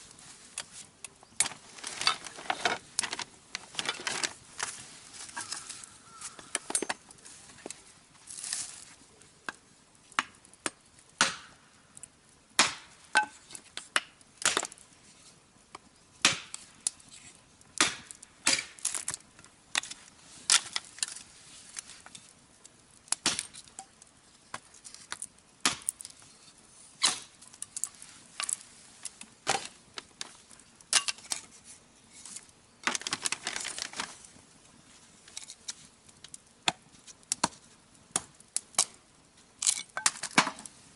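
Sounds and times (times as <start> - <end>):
rustling scrape: 0.0 - 6.4
firewood being chopped: 9.4 - 11.6, 12.6 - 14.9, 15.7 - 17.0, 17.7 - 21.3, 22.9 - 26.2, 27.0 - 31.5, 35.6 - 39.0, 39.6 - 40.8.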